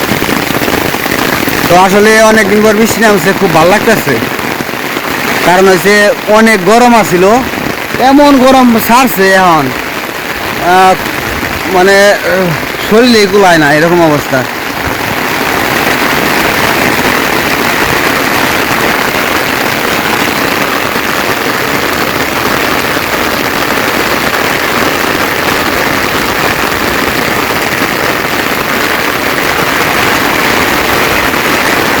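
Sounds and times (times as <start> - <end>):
rain falling steadily: 0.0 - 32.0.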